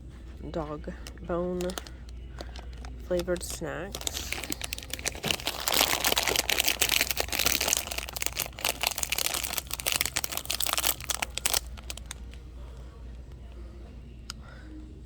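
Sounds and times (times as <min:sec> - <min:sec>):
plastic snack package crinkling: 0:01.6 - 0:12.4.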